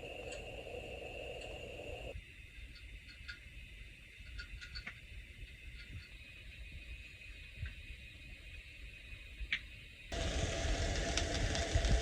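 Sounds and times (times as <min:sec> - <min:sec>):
low wind rumble: 0:10.1 - 0:12.0.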